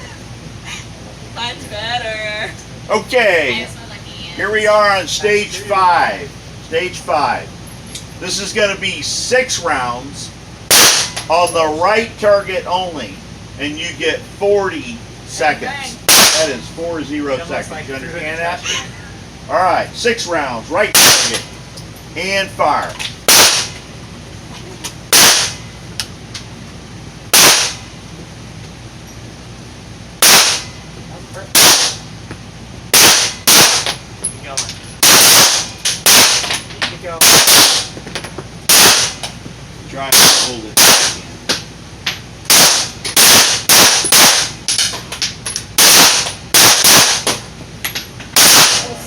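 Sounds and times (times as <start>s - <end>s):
pistol shots with echo: 10.7s - 11.2s, 16.1s - 16.6s, 21.0s - 21.4s, 23.3s - 23.8s, 25.1s - 25.6s, 27.3s - 27.8s, 30.2s - 30.7s, 31.6s - 32.0s, 32.9s - 34.0s, 35.0s - 36.6s, 37.2s - 37.9s, 38.7s - 39.2s, 40.1s - 41.2s, 42.5s - 44.6s, 45.8s - 47.4s, 48.4s - 49.0s
handgun shots with echo: 16.1s - 16.5s, 21.0s - 21.4s, 25.2s - 25.6s, 45.8s - 47.4s.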